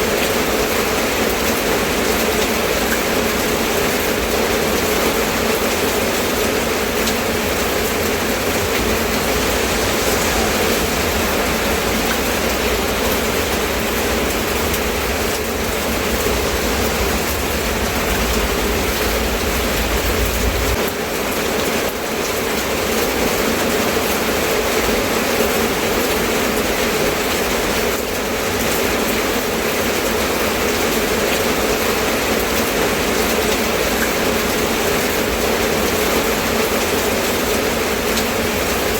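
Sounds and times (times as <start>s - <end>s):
steady rain falling: 0.0s - 38.9s
low rumble: 4.7s - 21.0s.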